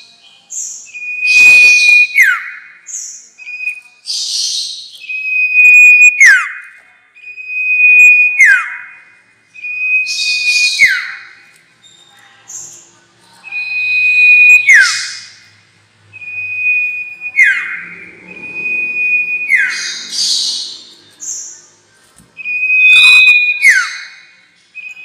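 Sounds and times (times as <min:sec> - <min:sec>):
songbird whistle call: 0:00.9 - 0:06.6, 0:07.2 - 0:11.4, 0:13.4 - 0:15.4, 0:16.2 - 0:21.4, 0:22.4 - 0:25.0.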